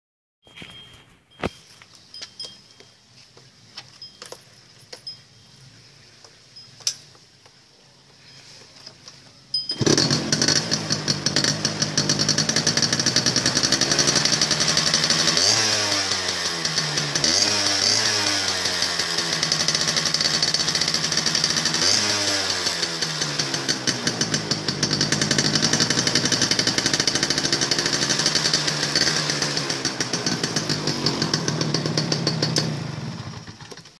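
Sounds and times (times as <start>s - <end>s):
two-stroke motorcycle engine revving: 9.7s - 33.8s.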